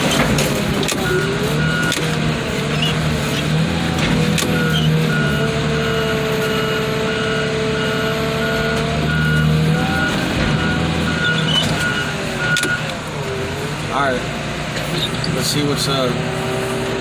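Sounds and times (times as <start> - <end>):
diesel engine running with whine: 0.0 - 17.0
reversing alarm beeping: 0.1 - 13.0.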